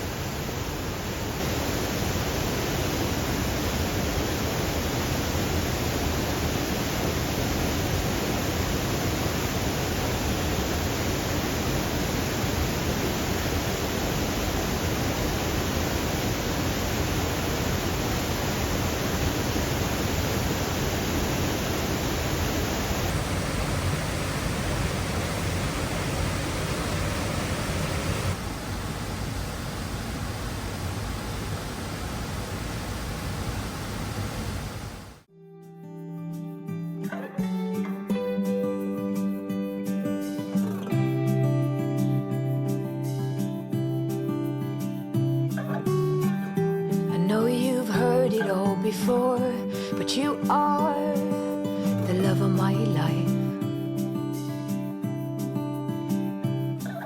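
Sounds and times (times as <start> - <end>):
waterfall rushing: 0.0 - 35.3.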